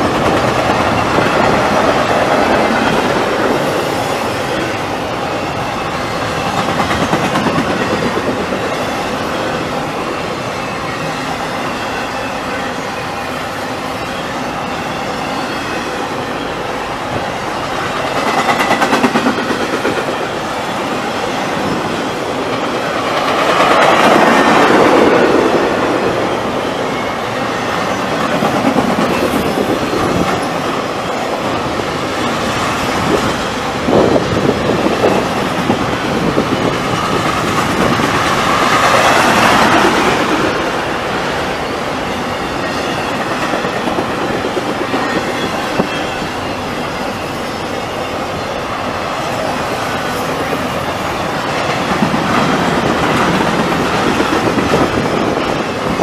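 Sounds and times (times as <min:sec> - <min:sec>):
train wheels clattering on rails: 0:00.0 - 0:56.0.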